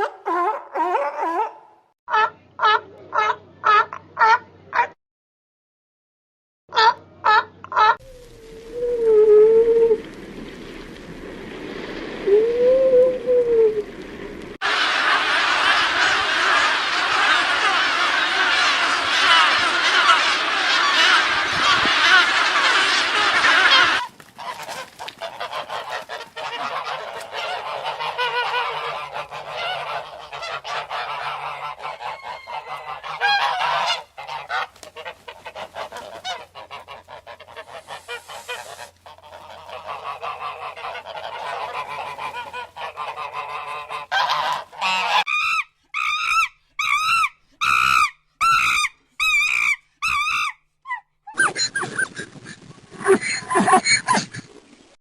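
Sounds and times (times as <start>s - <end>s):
geese honking: 14.6s - 50.5s.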